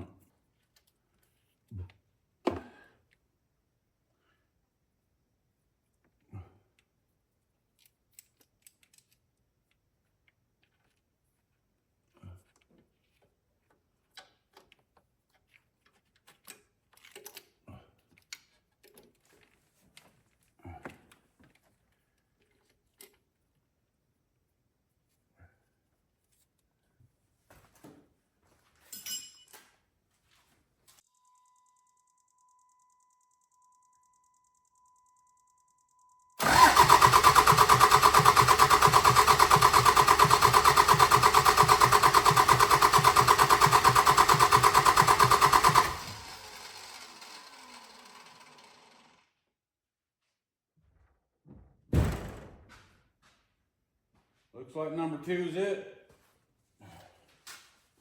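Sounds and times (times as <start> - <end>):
hand tools and metal parts clicking: 7.7 - 11.1, 13.7 - 19.6
diesel engine cranking by starter: 36.4 - 49.1.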